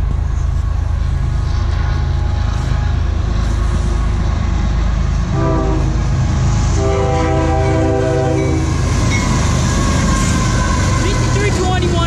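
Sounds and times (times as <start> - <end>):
diesel locomotives rumbling: 0.0 - 12.0
locomotive air horn blast: 5.3 - 6.1, 6.7 - 8.8.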